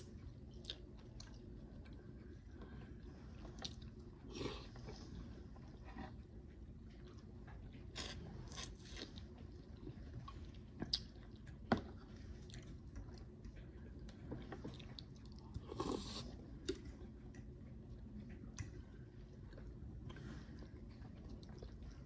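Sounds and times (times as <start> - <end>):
person chewing: 0.1 - 5.0, 7.0 - 11.6, 12.4 - 17.5.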